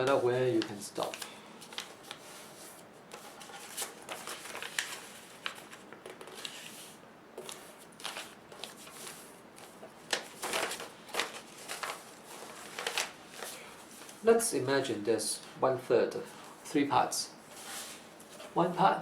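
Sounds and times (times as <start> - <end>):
paper rustling and crinkling: 0.0 - 14.2.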